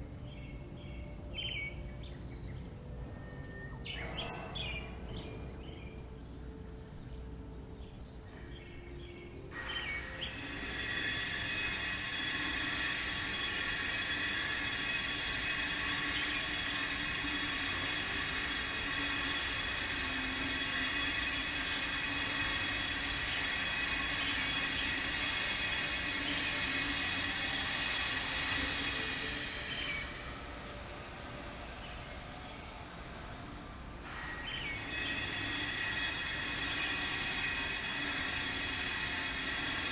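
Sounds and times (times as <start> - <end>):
power grinder on stone: 10.1 - 30.4, 34.4 - 39.9.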